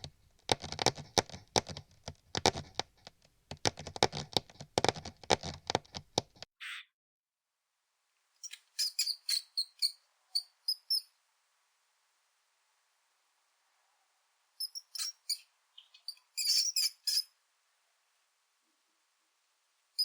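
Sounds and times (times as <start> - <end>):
mouse scurrying clicks: 0.0 - 6.4
short high squeaks: 8.4 - 11.1, 14.6 - 17.4.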